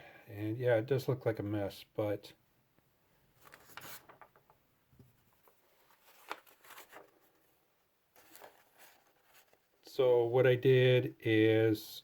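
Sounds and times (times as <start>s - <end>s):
faint clicks and rustles of handling: 2.8s - 9.9s.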